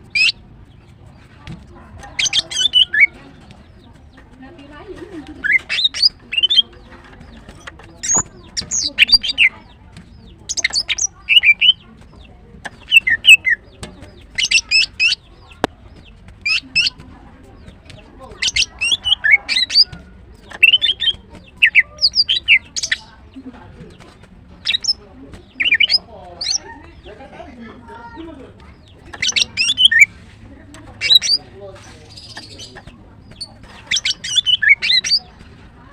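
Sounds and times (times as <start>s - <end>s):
bird chirping and whistling: 0.1s - 0.4s, 2.2s - 3.2s, 5.4s - 6.7s, 8.0s - 9.5s, 10.5s - 11.8s, 12.7s - 13.6s, 14.3s - 15.3s, 16.5s - 17.0s, 18.4s - 23.1s, 24.6s - 26.6s, 29.1s - 30.1s, 31.0s - 31.4s, 32.1s - 35.4s.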